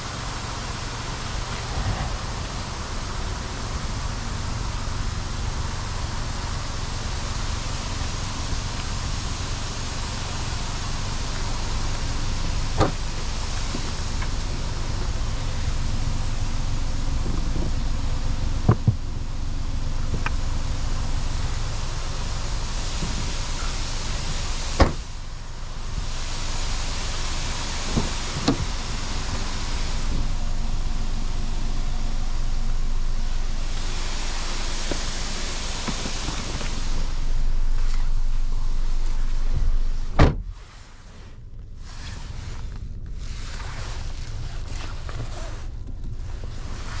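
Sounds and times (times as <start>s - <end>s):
car engine idling: 0.0s - 47.0s
car doors and boot shutting: 12.6s - 20.6s, 24.7s - 25.2s, 27.8s - 29.5s, 34.8s - 40.6s.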